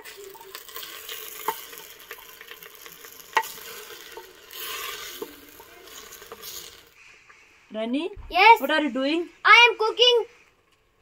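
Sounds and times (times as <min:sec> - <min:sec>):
greens frying in oil: 0:00.0 - 0:07.0.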